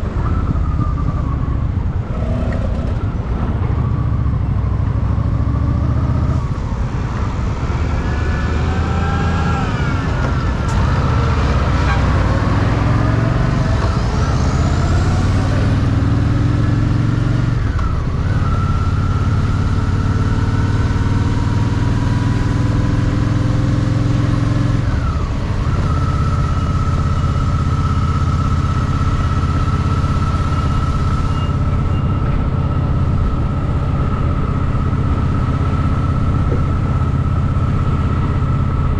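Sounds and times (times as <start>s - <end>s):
motorcycle engine running: 9.9s - 38.9s.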